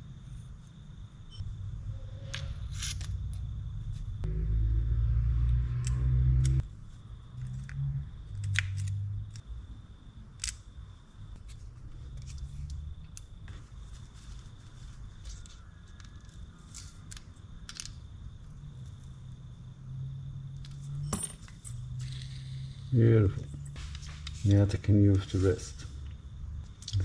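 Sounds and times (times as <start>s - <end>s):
low steady hum: 0.0s - 27.0s
small metal parts clicking: 10.4s - 10.6s, 15.4s - 18.0s.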